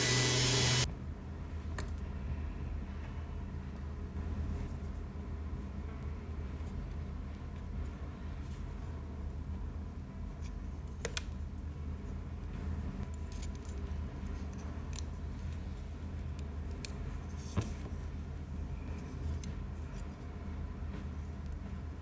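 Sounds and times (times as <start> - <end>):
steady low hum: 0.0 - 0.9.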